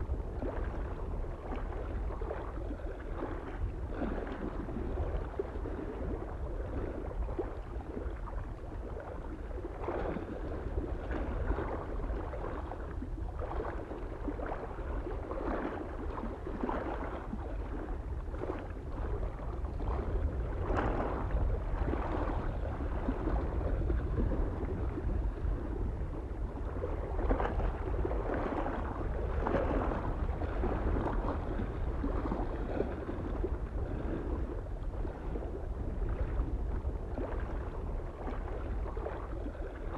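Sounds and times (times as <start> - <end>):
low wind rumble: 0.0 - 39.9
waves lapping against shore: 0.0 - 39.9.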